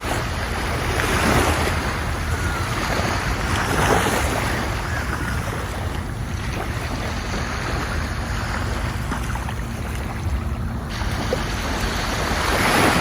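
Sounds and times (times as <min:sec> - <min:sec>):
ocean surf washing in: 0:00.0 - 0:13.0
wind rumble on microphone: 0:00.0 - 0:13.0.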